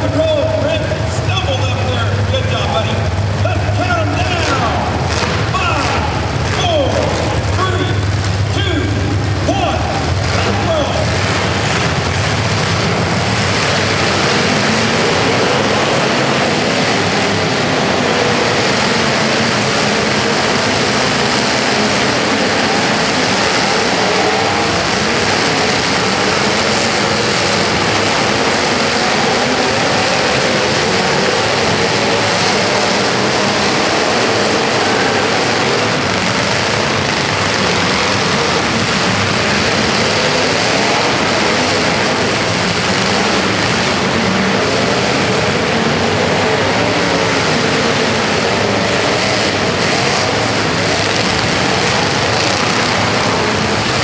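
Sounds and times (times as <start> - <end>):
vehicle engines running: 0.0 - 54.0.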